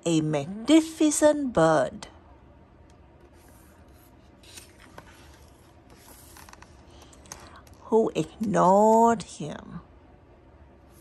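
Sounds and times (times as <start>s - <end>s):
low steady hum: 0.0s - 11.0s
book page turning: 3.2s - 7.8s.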